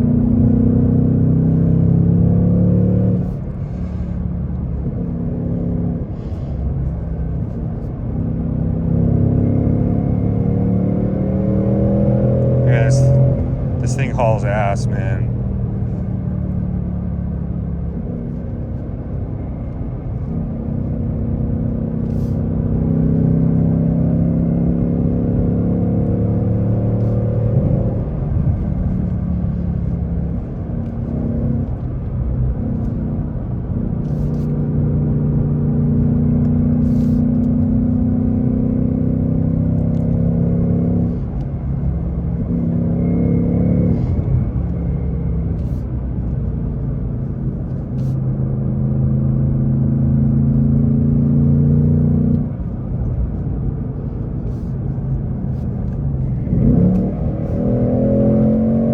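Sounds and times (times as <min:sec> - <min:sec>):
car engine revving under load: 0:49.6 - 0:58.9.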